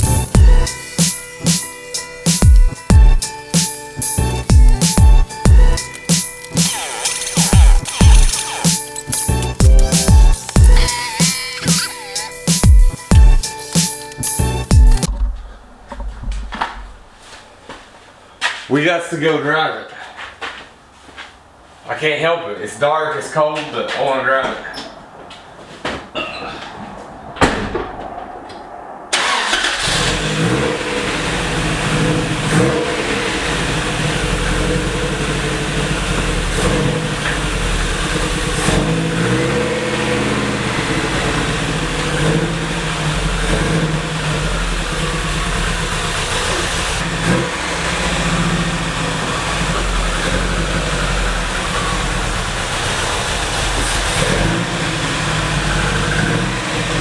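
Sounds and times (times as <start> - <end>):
engine running: 0.0 - 16.8, 29.1 - 57.0.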